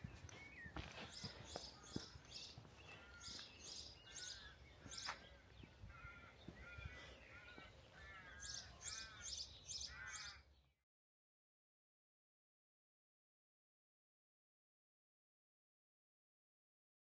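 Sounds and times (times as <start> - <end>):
birds calling: 0.0 - 10.7.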